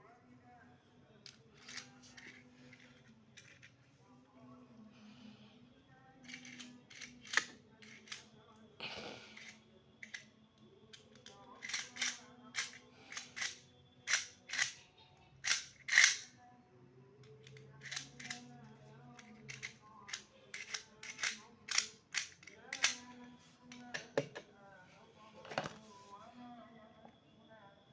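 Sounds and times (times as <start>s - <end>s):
plastic toy parts clicking: 1.3s - 2.4s, 3.0s - 3.7s, 6.2s - 8.3s, 9.4s - 10.3s, 10.9s - 14.8s, 15.4s - 16.3s, 17.3s - 18.5s, 19.1s - 23.0s.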